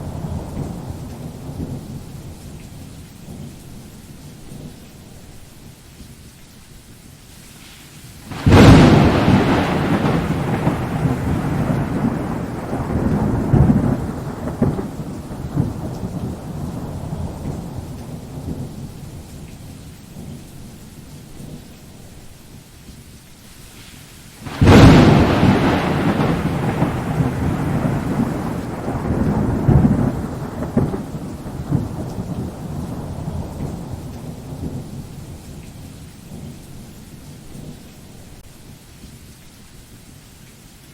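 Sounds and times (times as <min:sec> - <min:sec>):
thunderclaps rumbling: 0:00.0 - 0:05.0, 0:08.3 - 0:21.7, 0:24.4 - 0:38.4
steady rain: 0:00.0 - 0:40.9.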